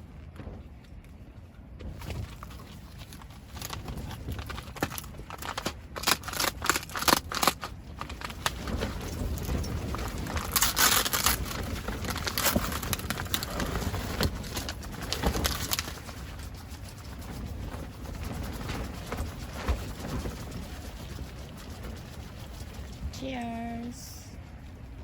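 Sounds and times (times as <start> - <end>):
small objects clicking and knocking: 2.0 - 16.0.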